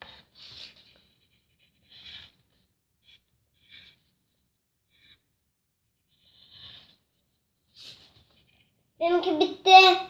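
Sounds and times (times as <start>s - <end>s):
pen scratching on paper: 0.0s - 5.3s, 6.0s - 7.1s.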